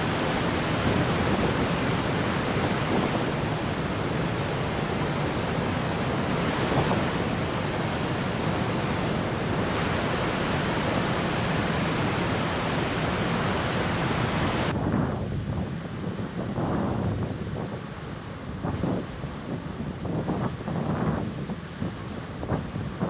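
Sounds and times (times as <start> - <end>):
waterfall roaring: 0.0 - 14.7.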